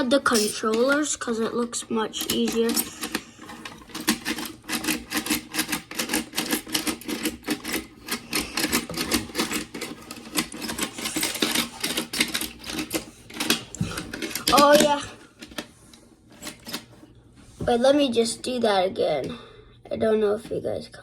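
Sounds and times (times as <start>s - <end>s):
plastic toys clicking: 0.0s - 15.7s.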